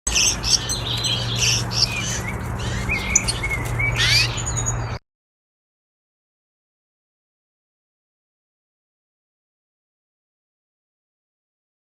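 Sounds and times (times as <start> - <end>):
steady low hum: 0.1 - 4.5
finches chirping: 0.1 - 5.0.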